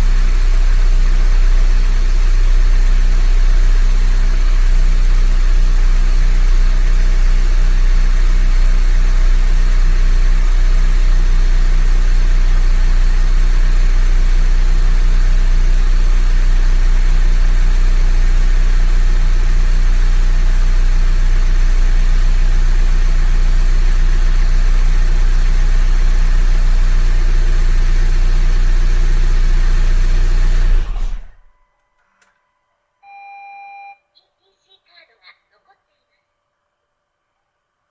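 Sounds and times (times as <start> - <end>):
car engine idling: 0.0 - 31.5
short electronic beep: 31.5 - 34.1.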